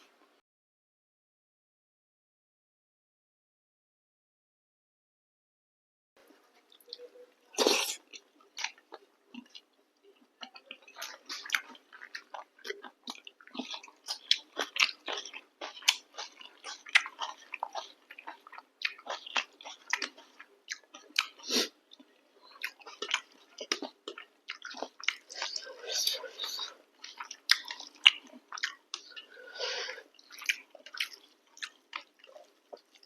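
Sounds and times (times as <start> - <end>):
close chewing and mouth smacks: 6.6 - 29.4, 30.0 - 33.0.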